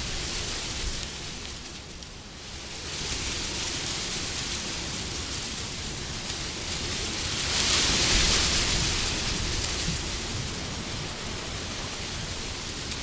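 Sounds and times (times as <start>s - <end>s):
gusting wind: 0.0s - 13.0s.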